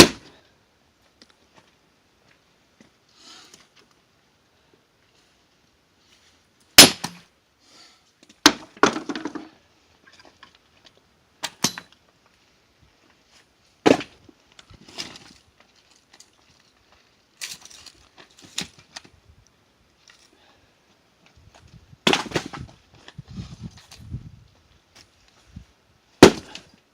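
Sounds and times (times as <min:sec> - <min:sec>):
heavy tool striking logs: 0:00.0 - 0:00.3, 0:06.8 - 0:07.2, 0:08.4 - 0:09.5, 0:11.4 - 0:11.9, 0:13.8 - 0:14.2, 0:22.0 - 0:22.8, 0:26.2 - 0:26.7
wood splitting crackle: 0:00.0 - 0:00.3, 0:06.8 - 0:07.2, 0:13.8 - 0:16.7, 0:22.0 - 0:22.8, 0:26.2 - 0:26.8.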